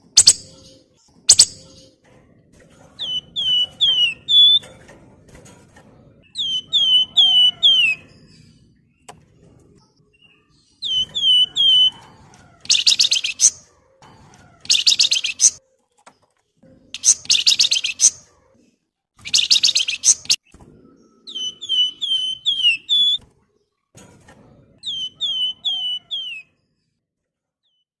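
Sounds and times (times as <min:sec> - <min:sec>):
bird harsh rattling chatter: 0:01.3 - 0:01.8, 0:12.7 - 0:13.6, 0:14.6 - 0:15.6, 0:17.0 - 0:18.2, 0:19.3 - 0:20.4
bird downward-sliding whistles: 0:21.3 - 0:23.2.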